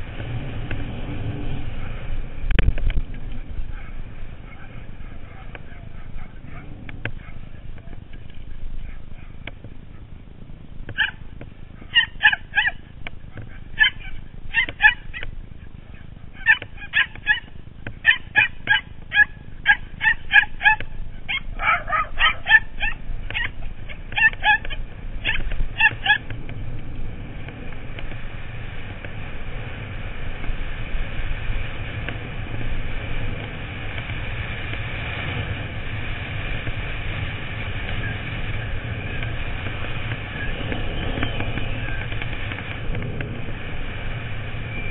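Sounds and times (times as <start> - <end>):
rushing noise with low rumble: 0.0 - 44.9
small dogs yapping: 3.7 - 7.6, 10.9 - 11.2, 11.8 - 15.3, 15.9 - 26.3.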